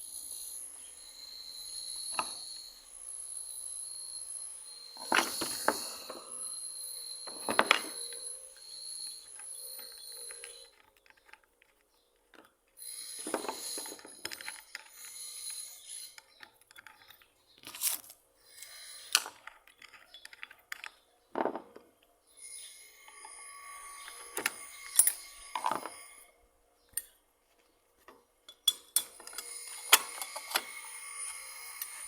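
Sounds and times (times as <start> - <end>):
metal scraping: 22.3 - 26.3, 28.6 - 32.0.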